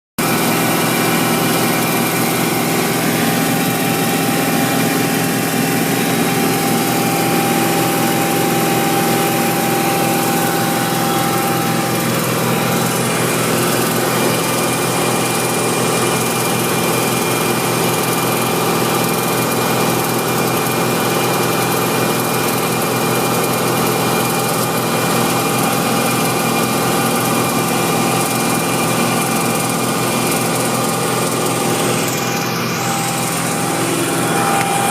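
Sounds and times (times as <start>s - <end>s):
car engine running: 0.2s - 34.9s
irregular engine ticking: 0.2s - 34.9s.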